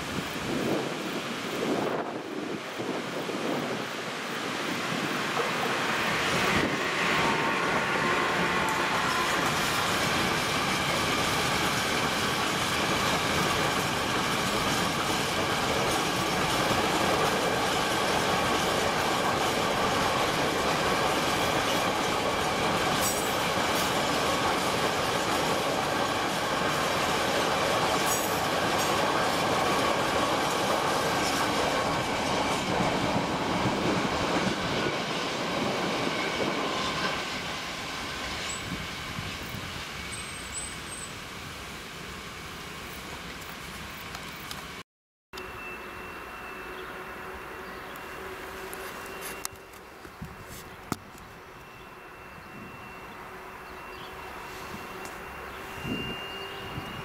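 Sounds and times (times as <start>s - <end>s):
train wheels clattering on rails: 4.8s - 40.7s.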